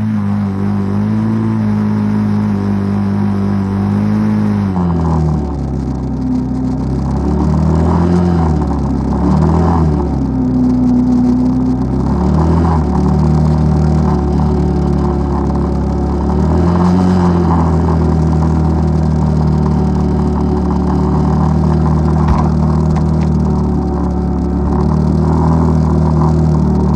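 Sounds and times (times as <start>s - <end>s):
atv engine revving: 0.0s - 5.6s, 12.0s - 26.9s.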